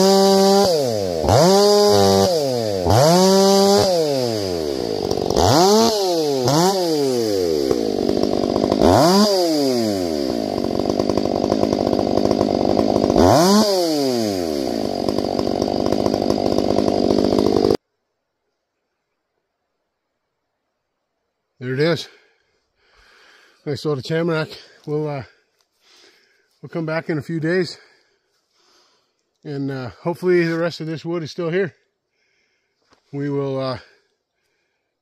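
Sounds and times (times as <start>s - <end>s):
chainsaw revving: 0.0s - 17.8s.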